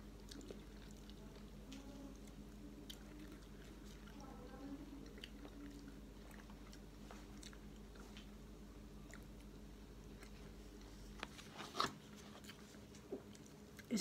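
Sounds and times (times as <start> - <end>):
person chewing food: 0.0 - 14.0
steady low hum: 0.0 - 14.0.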